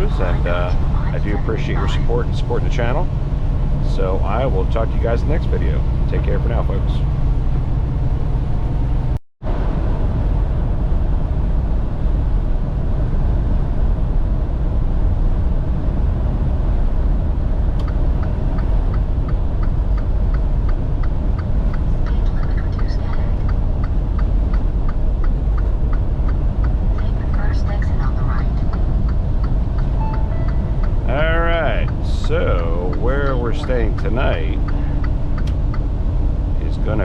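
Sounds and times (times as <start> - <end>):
truck engine and road rumble: 0.0 - 37.0
regular ticking: 17.8 - 37.0.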